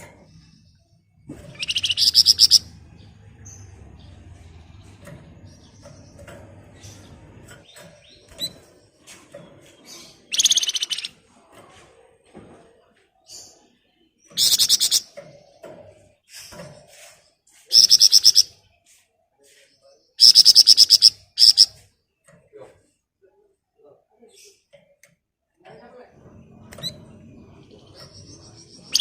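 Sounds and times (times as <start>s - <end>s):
soft short bird chirps: 1.4s - 2.7s, 10.3s - 11.1s, 14.4s - 15.0s, 17.0s - 21.8s
songbird rattling trill: 1.6s - 2.7s, 10.2s - 11.1s, 14.4s - 15.2s, 17.7s - 18.5s, 20.2s - 21.7s, 27.8s - 29.0s.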